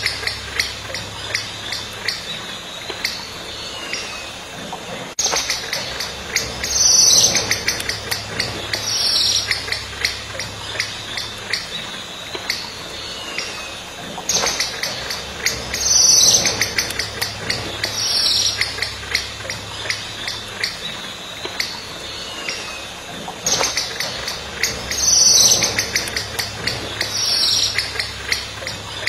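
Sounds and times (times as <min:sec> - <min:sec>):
falling bird calls: 0:00.0 - 0:29.0
sharp high bird chirps: 0:05.2 - 0:20.9, 0:23.5 - 0:29.0.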